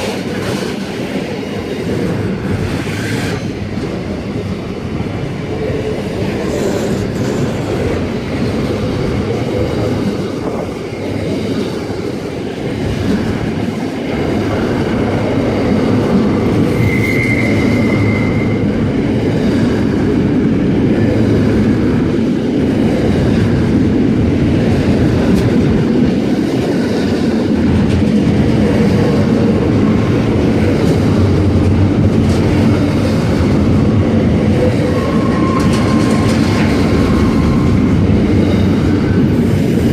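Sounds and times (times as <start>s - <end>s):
freight train wheels clicking: 0.0s - 39.9s
train wheel squeal: 16.6s - 18.8s, 34.6s - 38.0s.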